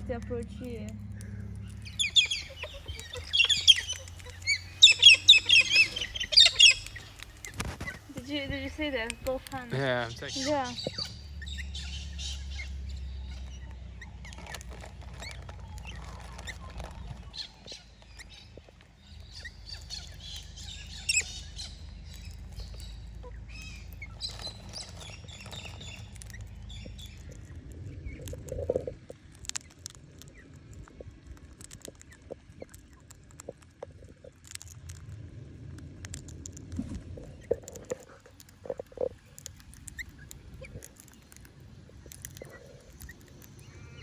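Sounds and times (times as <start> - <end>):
low rumble: 0.0 - 29.4
birds chirping: 0.0 - 33.1, 36.8 - 44.0.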